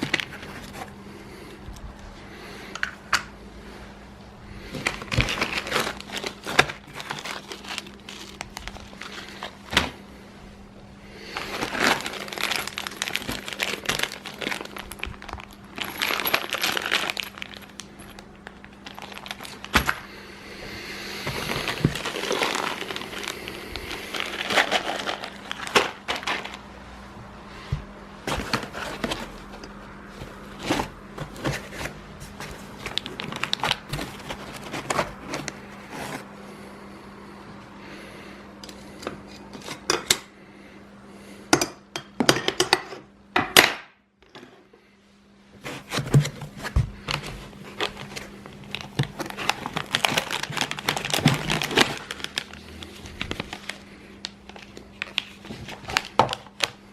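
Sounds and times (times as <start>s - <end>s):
plastic packaging crinkling: 0.0s - 1.0s, 4.7s - 10.0s, 11.2s - 20.2s, 20.9s - 26.9s, 28.2s - 36.3s, 45.6s - 56.9s
steady low hum: 0.0s - 43.4s.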